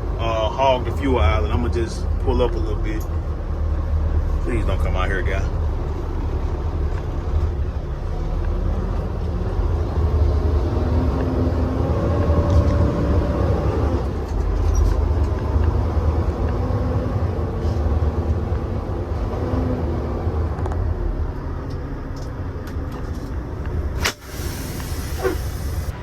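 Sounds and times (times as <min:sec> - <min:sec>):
diesel truck engine running: 0:00.0 - 0:26.0
air brake hiss: 0:24.0 - 0:26.0.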